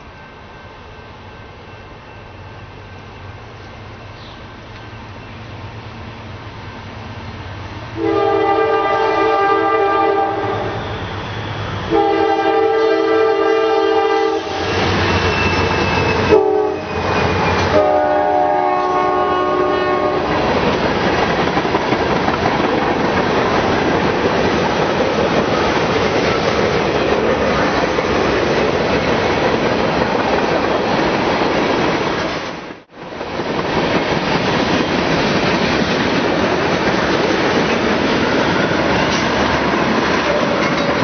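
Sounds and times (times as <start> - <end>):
train rolling past: 0.0 - 41.0
locomotive air horn: 8.0 - 11.2, 11.8 - 20.4.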